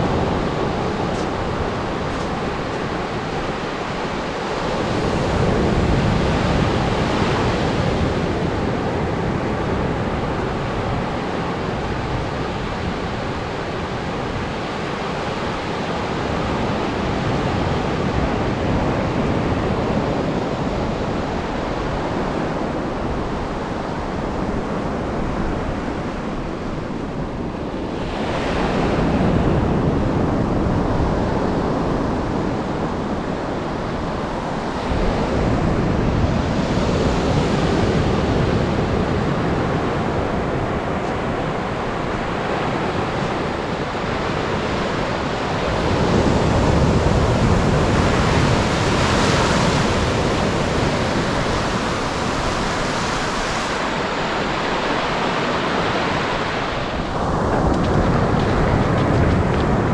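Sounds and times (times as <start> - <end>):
surf breaking on sandy beach: 33.8 - 59.9.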